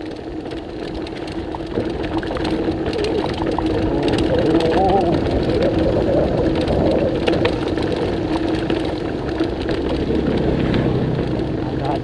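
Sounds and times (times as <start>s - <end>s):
bike rattling and clicking: 0.0s - 12.0s
wind buffeting microphone: 0.6s - 12.0s.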